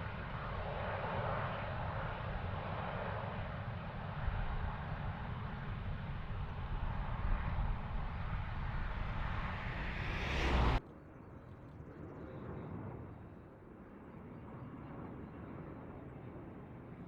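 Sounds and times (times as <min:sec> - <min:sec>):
jet aircraft roar: 0:00.0 - 0:10.8.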